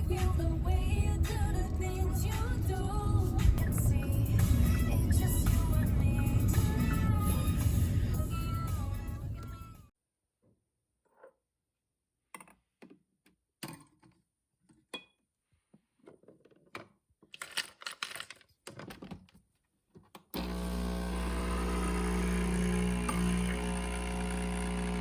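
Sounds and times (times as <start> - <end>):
background music: 0.0 - 9.9.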